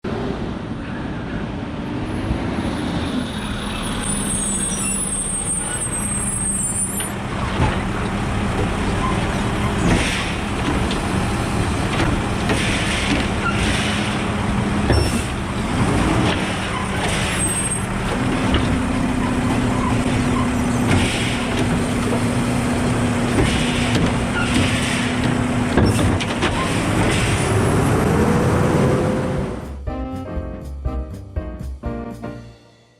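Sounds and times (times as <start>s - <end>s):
garbage truck hydraulic drone: 3.4s - 29.4s.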